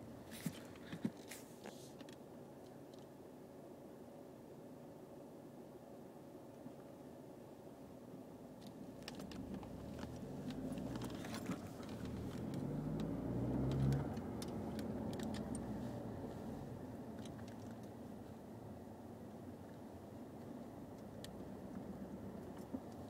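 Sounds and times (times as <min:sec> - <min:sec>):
turbocharged engine revving: 0:12.0 - 0:16.6.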